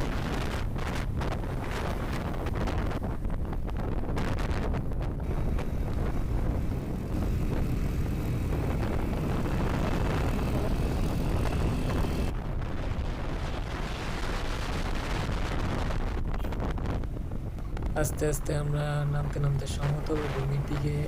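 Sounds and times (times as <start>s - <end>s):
motorcycle engine: 0.0s - 14.6s
wind buffeting microphone: 0.0s - 21.0s.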